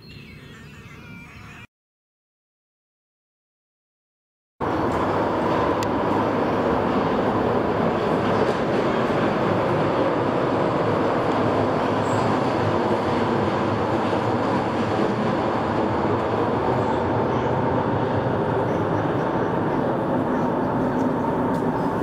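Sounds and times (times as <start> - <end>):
train rumbling over bridge: 4.6 - 22.0.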